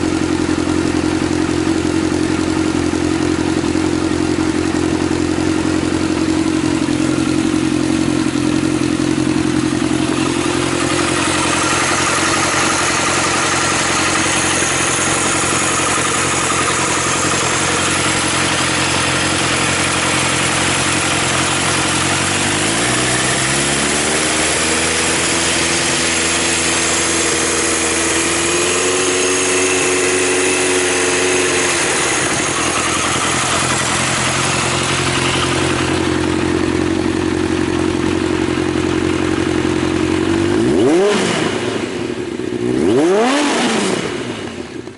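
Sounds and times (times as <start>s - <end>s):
motorcycle engine idling and revving: 0.0s - 44.9s.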